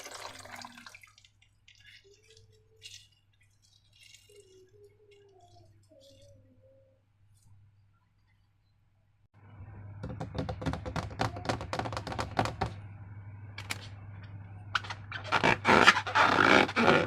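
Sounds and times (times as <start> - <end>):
slime squelching: 0.7 - 6.5.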